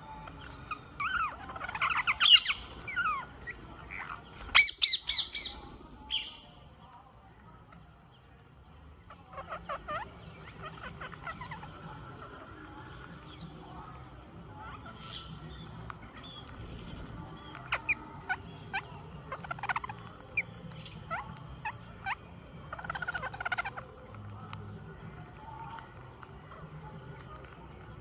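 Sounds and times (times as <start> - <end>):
parakeets screeching: 0.0 - 6.5, 9.3 - 12.0, 16.4 - 24.0
parakeet rattling chatter: 0.8 - 6.4.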